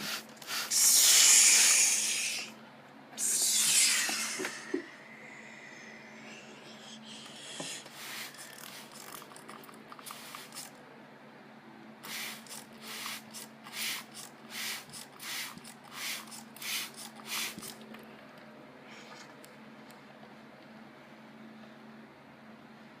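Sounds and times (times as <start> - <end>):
low machine hum: 0.0 - 23.0
car wash spray and cloth rushing: 7.8 - 9.3.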